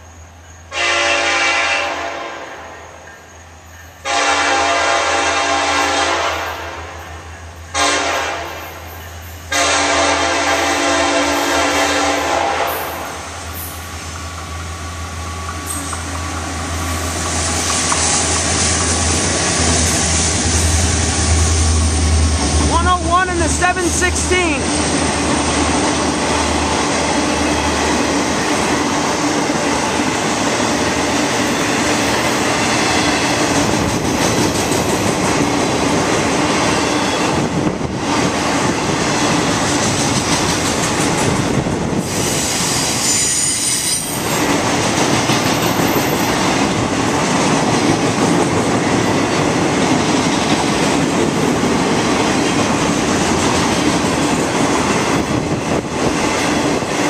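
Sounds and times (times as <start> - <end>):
steel wheels rumbling on rail: 0.0 - 57.0
high wheel squeal: 36.7 - 37.4, 42.2 - 44.4.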